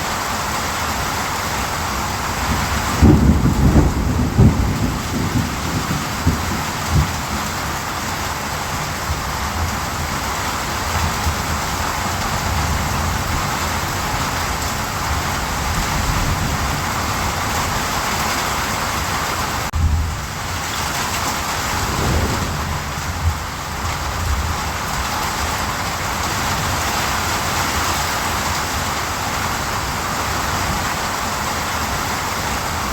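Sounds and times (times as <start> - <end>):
steady rain falling: 0.0 - 20.7, 21.4 - 32.9
low rumble: 21.4 - 24.1.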